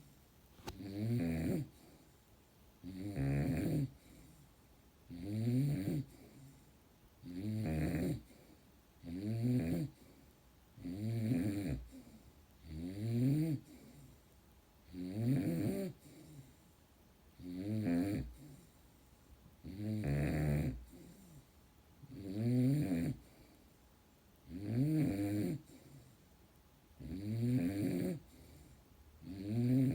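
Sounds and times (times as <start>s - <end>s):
dog snoring loudly: 0.6s - 1.8s, 2.8s - 4.1s, 5.1s - 6.5s, 7.2s - 8.4s, 9.0s - 10.0s, 10.8s - 13.9s, 14.9s - 16.4s, 17.4s - 18.6s, 19.6s - 21.4s, 22.1s - 23.4s, 24.4s - 26.0s, 27.0s - 29.9s.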